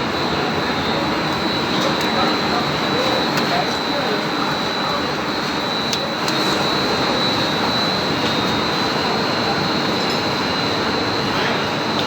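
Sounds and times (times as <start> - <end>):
high steady whine: 0.0 - 12.0.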